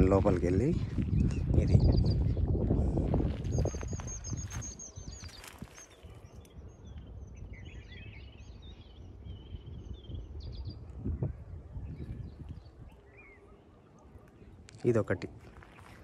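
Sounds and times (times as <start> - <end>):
small birds chirping and twittering: 0.0 - 16.0.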